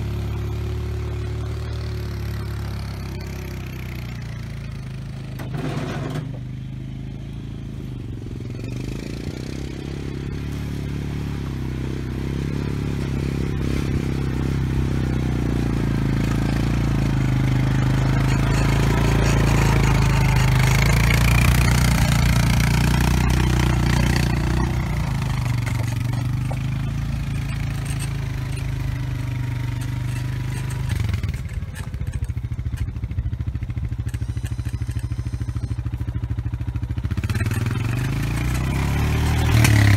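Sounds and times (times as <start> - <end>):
atv engine running: 0.0 - 39.9
blade scraping soil: 5.4 - 6.4, 13.5 - 33.2, 33.8 - 35.8, 37.2 - 39.9.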